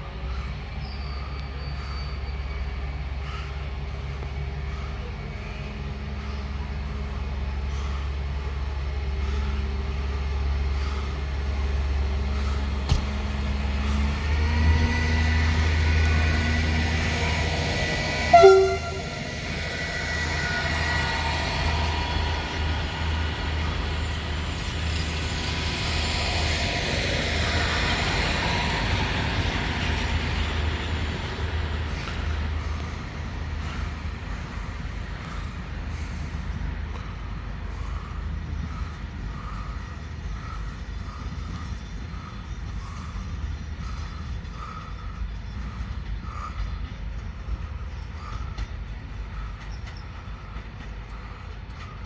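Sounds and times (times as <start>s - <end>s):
diesel train engine drone: 0.0s - 52.0s
train horn blast: 14.4s - 22.0s.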